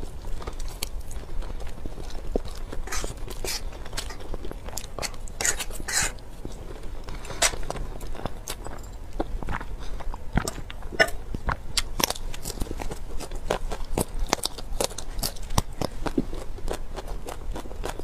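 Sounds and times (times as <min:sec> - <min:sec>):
crunchy chewing of broccoli: 0:00.0 - 0:18.0.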